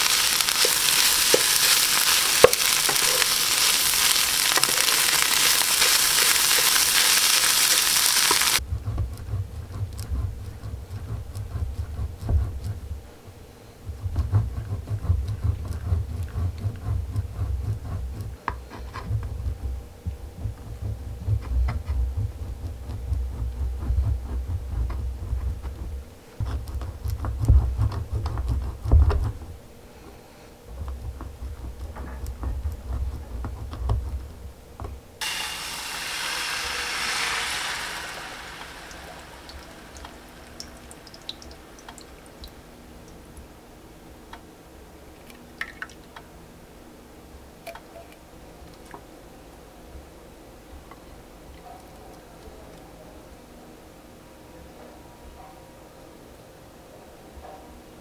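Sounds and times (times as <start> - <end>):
close-miked eating crunches: 0.0 - 8.6
frying sizzle: 0.0 - 8.6, 35.2 - 43.2.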